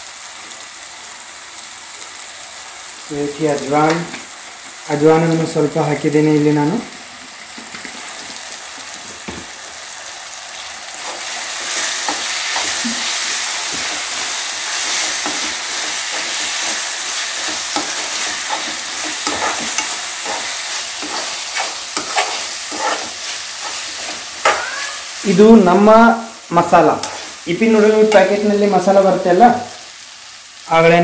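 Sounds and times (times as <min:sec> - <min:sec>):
vegetables sizzling in a pan: 0:00.0 - 0:31.0
steel spoon scraping a pan: 0:11.0 - 0:25.1, 0:27.0 - 0:27.4.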